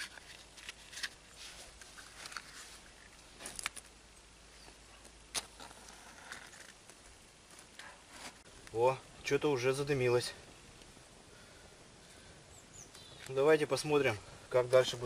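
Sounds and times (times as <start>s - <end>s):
matches being struck: 3.4s - 3.9s, 5.0s - 7.8s.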